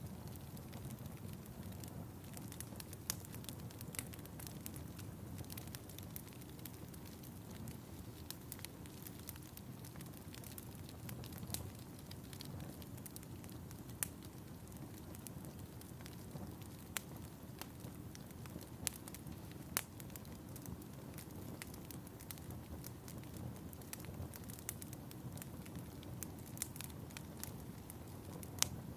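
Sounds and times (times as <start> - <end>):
fireplace fire crackling: 0.0 - 28.9.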